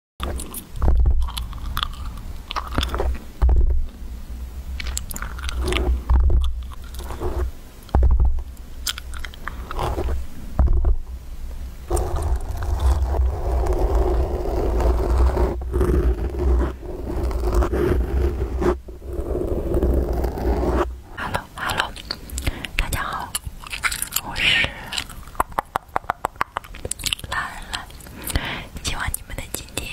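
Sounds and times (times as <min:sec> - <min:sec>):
fingers scratching a microphone: 0:00.2 - 0:03.9, 0:04.9 - 0:08.4, 0:09.0 - 0:11.1, 0:11.9 - 0:22.0.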